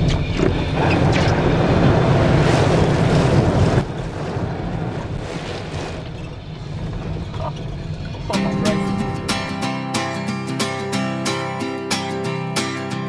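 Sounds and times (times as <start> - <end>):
wind buffeting microphone: 0.0 - 9.5
ocean surf washing: 0.0 - 13.0.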